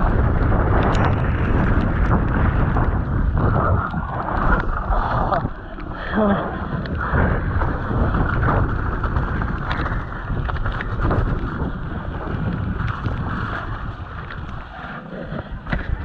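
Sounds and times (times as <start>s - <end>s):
bike knocking and rattling: 0.0s - 4.7s, 6.9s - 14.6s
wind buffeting microphone: 0.0s - 16.0s.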